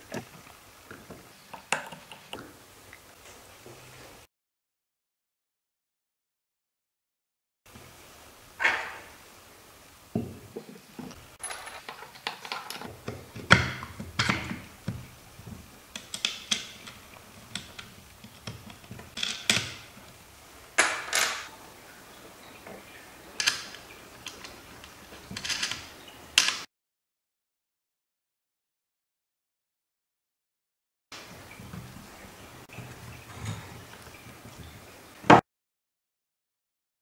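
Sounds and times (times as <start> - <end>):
pump parts knocking and clattering: 10.2 - 20.2, 20.8 - 21.5, 23.4 - 25.9.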